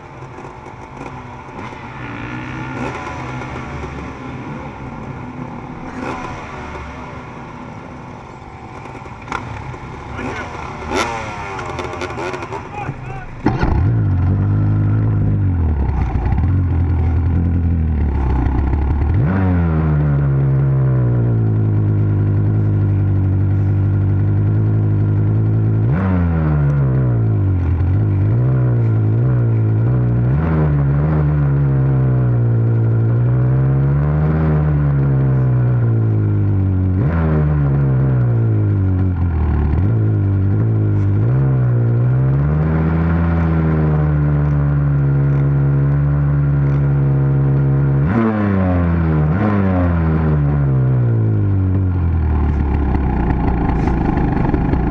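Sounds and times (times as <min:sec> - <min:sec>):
dirt bike engine revving: 0:00.3 - 0:08.0, 0:08.6 - 0:20.4.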